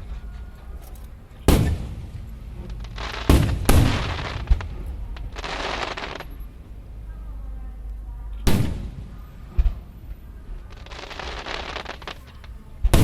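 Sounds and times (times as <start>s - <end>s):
fireworks bangs: 0.0s - 6.7s, 8.4s - 13.0s
fireworks hissing: 1.4s - 6.7s, 8.5s - 13.0s.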